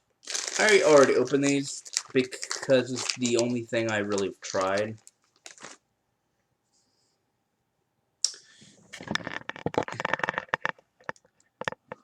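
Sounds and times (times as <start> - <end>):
snack pouch crinkling: 0.2 - 5.8.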